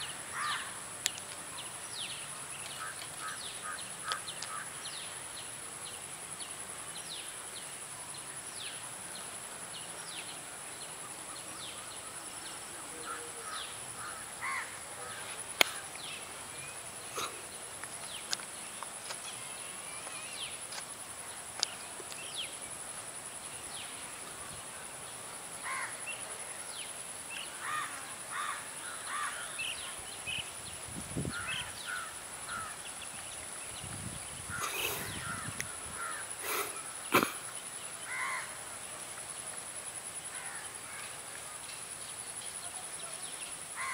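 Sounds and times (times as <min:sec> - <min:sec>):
crows cawing: 0:00.3 - 0:00.8, 0:13.1 - 0:15.8, 0:25.6 - 0:25.9, 0:27.6 - 0:29.6, 0:31.4 - 0:32.8, 0:34.5 - 0:36.3, 0:38.1 - 0:38.5
birds chirping: 0:25.7 - 0:38.4.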